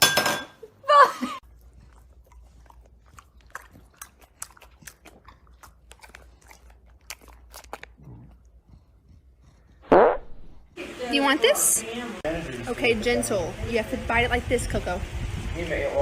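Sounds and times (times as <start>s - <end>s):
dog chewing crunches: 1.5s - 8.9s.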